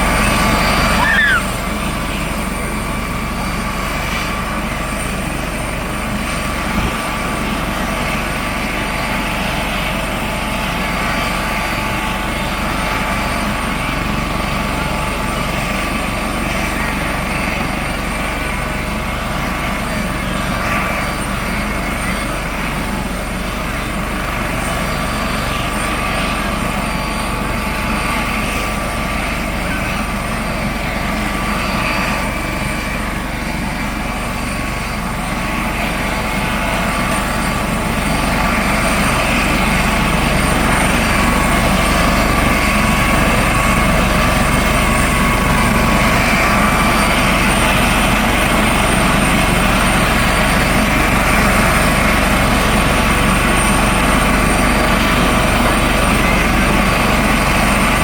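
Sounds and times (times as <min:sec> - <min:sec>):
helicopter rotor and turbine: 0:00.0 - 0:58.0
thin turbine whine: 0:00.0 - 0:58.0.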